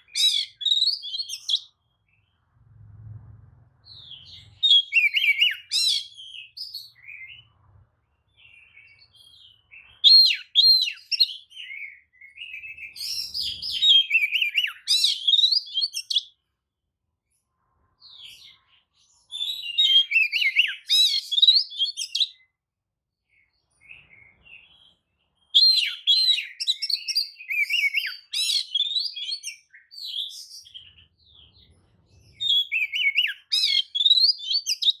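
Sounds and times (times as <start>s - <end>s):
bird singing whistled phrases: 0.0s - 1.8s, 4.0s - 7.5s, 8.5s - 16.3s, 19.3s - 22.4s, 25.5s - 31.0s, 32.4s - 35.0s.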